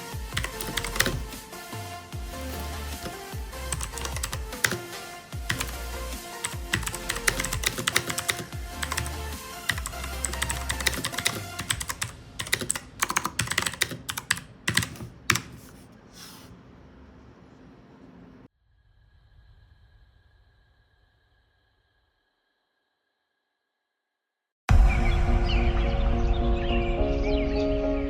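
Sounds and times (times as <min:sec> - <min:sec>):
background music: 0:00.0 - 0:15.1, 0:24.7 - 0:28.0
mechanical keyboard clicks: 0:00.4 - 0:01.4, 0:02.5 - 0:04.9, 0:05.5 - 0:05.8, 0:06.4 - 0:15.8.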